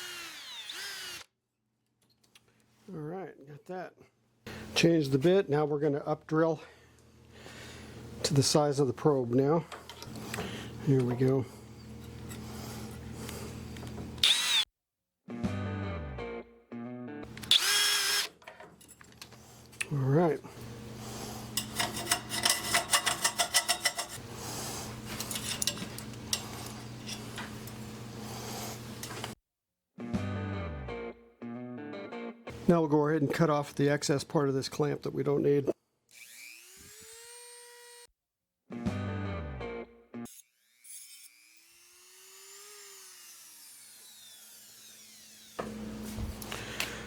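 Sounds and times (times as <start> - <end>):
power tool cutting metal: 0.0 - 1.2, 14.2 - 14.6, 17.4 - 18.4, 21.5 - 24.2, 36.1 - 38.1, 40.3 - 45.8
metal tools clicking and clinking: 18.4 - 19.3, 21.6 - 24.2, 25.1 - 27.8.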